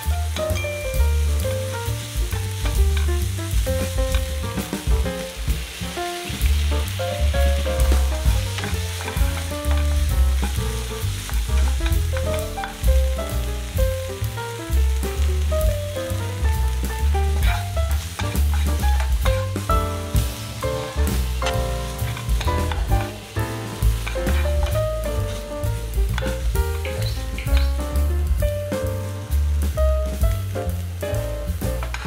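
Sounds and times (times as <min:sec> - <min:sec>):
background music: 0:00.0 - 0:32.0
vegetables sizzling in a pan: 0:00.0 - 0:32.0
wooden spatula stirring: 0:07.9 - 0:12.8, 0:21.1 - 0:25.5.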